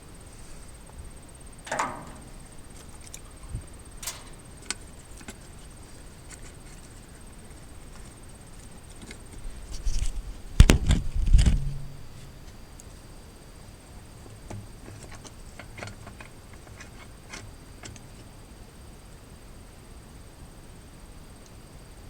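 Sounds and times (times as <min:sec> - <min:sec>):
light clicks: 0:04.0 - 0:05.4
deep knocks and thuds: 0:10.6 - 0:12.6.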